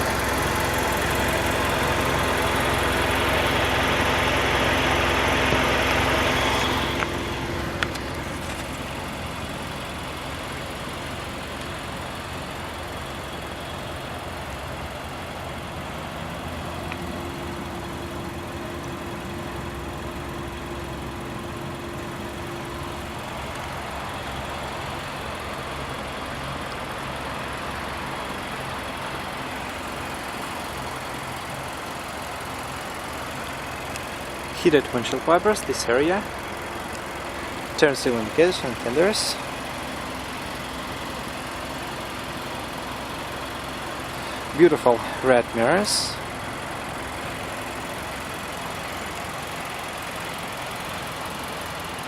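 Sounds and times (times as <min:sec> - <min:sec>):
car engine idling: 0:00.0 - 0:52.0.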